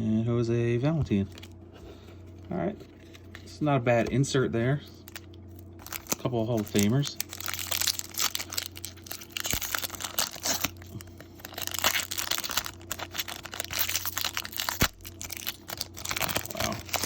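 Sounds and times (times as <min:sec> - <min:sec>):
wrapper tearing and crinkling: 0:05.0 - 0:17.0.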